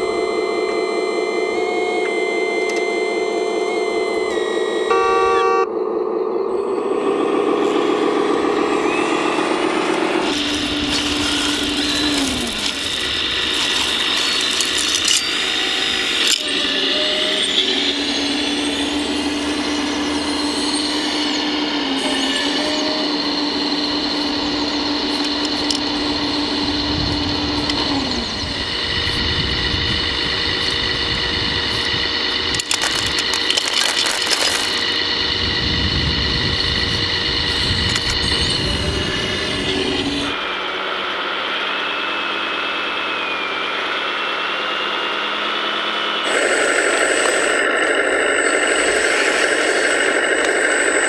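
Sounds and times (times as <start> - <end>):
electric motors whining: 0.0 - 51.0
scraping: 10.2 - 17.0, 32.2 - 35.1
sharp clicks: 10.3 - 18.1, 31.7 - 35.1.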